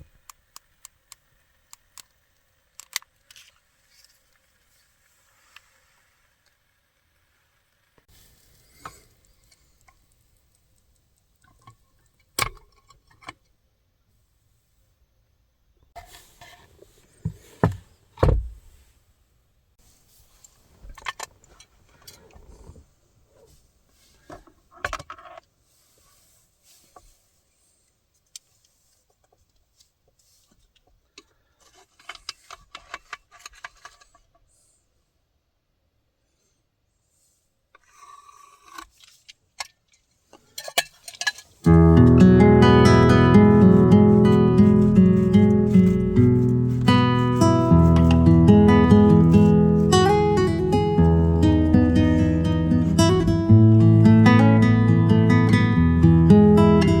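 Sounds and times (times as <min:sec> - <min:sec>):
clicks and knocks of small objects: 0:30.4 - 0:34.4, 0:37.8 - 0:41.6.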